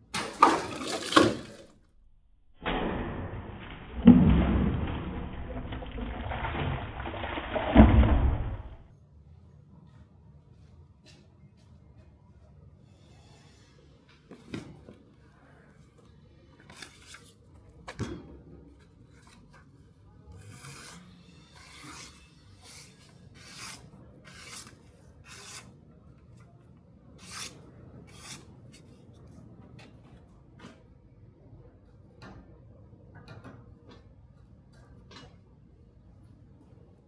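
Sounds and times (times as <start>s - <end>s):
file rubbing on knife steel: 20.3s - 25.7s, 27.2s - 28.9s.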